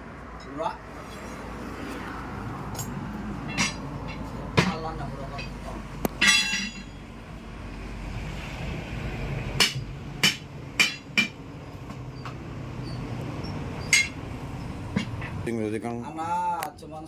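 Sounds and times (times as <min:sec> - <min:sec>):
hammer striking steel: 0:03.5 - 0:07.0, 0:09.6 - 0:11.4, 0:13.9 - 0:14.2.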